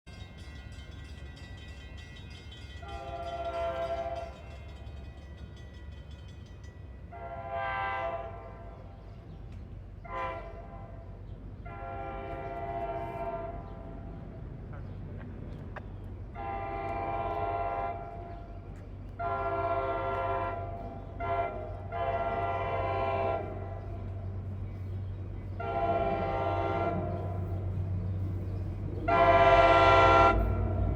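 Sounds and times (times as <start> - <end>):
locomotive air horn blasts: 2.8 - 4.5, 7.1 - 9.0, 10.0 - 14.0, 16.4 - 18.3, 19.2 - 24.1, 25.6 - 27.8, 29.1 - 30.9.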